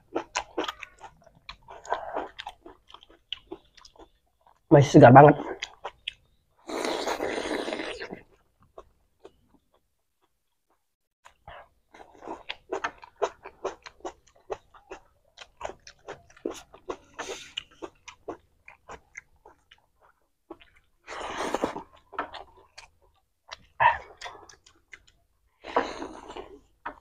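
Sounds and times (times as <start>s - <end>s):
wet chewing and biting: 0.0s - 4.7s, 11.2s - 27.0s.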